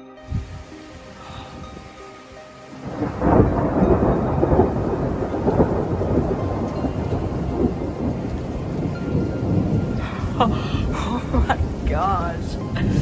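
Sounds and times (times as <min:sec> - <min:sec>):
thunder clap and rumble: 0:02.8 - 0:13.0.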